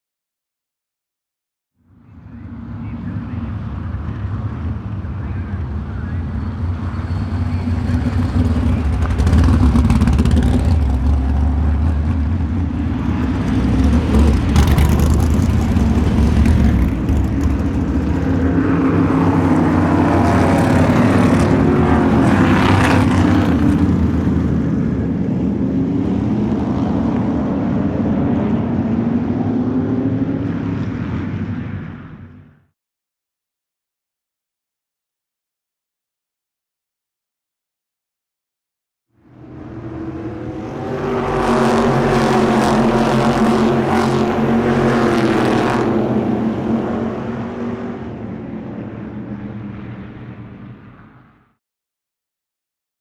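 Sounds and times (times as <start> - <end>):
car engine humming: 2.3 - 24.7, 39.4 - 50.9.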